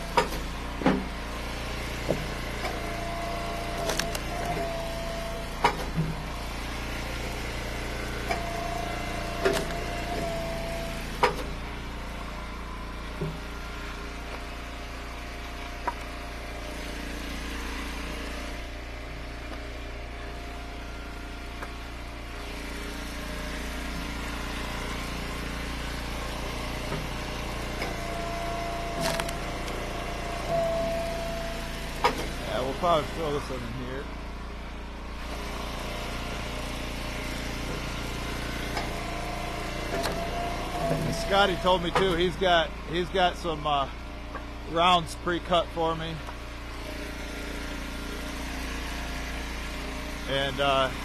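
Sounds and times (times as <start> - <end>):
gas engine running: 0.0 - 51.0
hydraulic whine: 0.0 - 51.0
wood cracking: 29.0 - 29.8.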